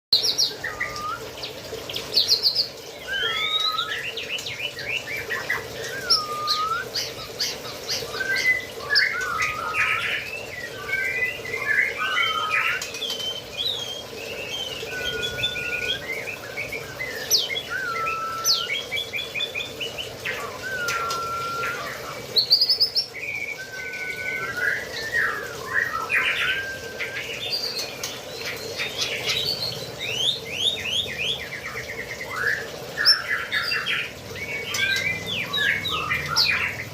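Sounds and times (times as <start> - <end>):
caged birds whistling and chirping: 0.2 - 36.9.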